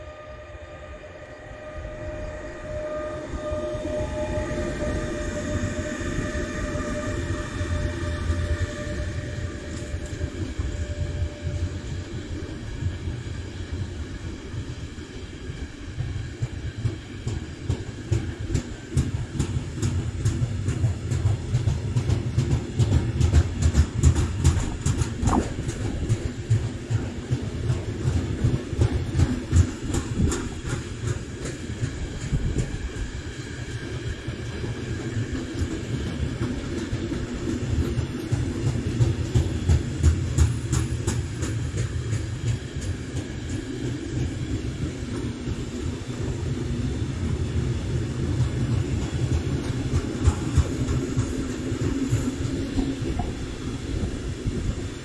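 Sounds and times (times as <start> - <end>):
train wheels rumbling on rails: 0.0 - 55.0
wheels clacking over track: 16.5 - 33.1.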